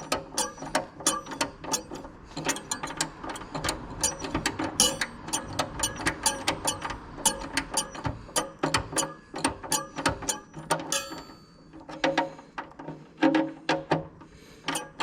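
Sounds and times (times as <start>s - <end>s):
ratchet wrench clicking: 0.0s - 11.2s.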